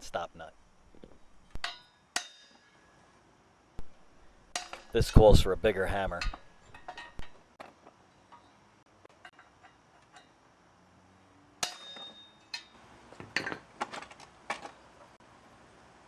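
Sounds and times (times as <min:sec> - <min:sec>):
hammer striking steel: 0:01.6 - 0:02.8, 0:04.5 - 0:05.0, 0:11.6 - 0:12.8.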